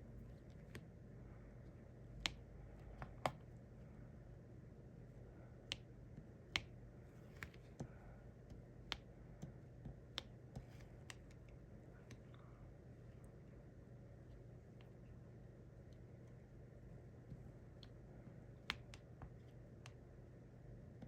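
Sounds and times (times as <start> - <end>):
faint low hum: 0.0 - 21.0
pen tapping small sharp clicks: 6.5 - 6.8, 8.5 - 11.5.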